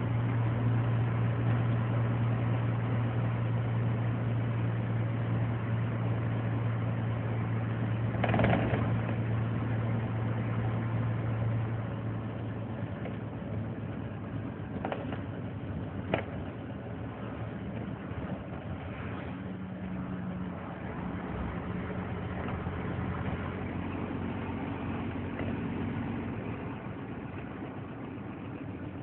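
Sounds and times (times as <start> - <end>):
diesel truck engine idling: 8.9 - 29.0.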